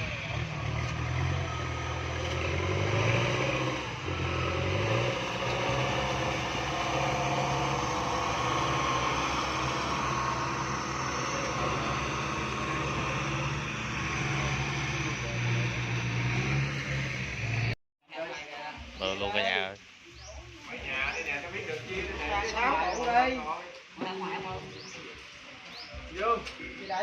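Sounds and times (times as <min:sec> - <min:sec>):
vehicle engine running: 0:00.0 - 0:17.8.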